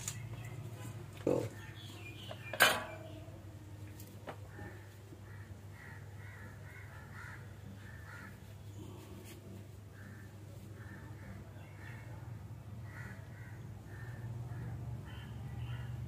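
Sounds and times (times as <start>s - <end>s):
birds cawing: 4.5s - 8.4s, 12.8s - 16.0s.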